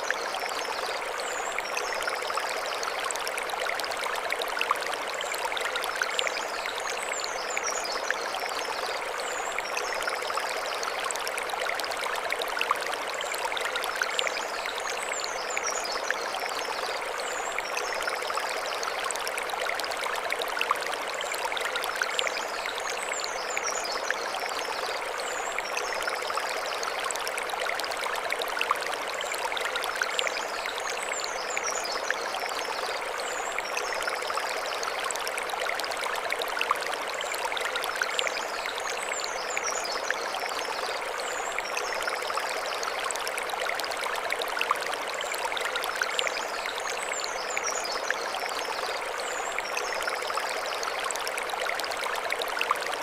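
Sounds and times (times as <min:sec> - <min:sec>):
stream running over stones: 0:00.0 - 0:53.0.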